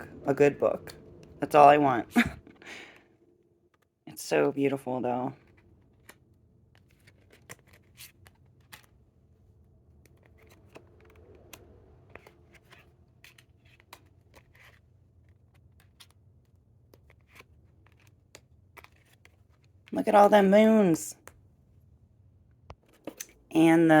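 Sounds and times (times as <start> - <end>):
low steady hum: 0.0 - 24.0
cards clicking and scraping: 5.4 - 19.9, 22.7 - 23.4.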